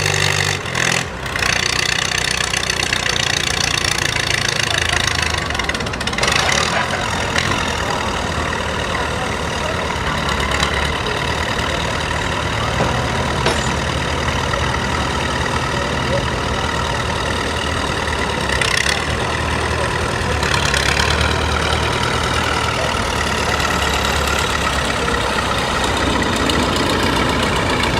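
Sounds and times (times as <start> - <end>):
tractor engine running: 0.0 - 27.9.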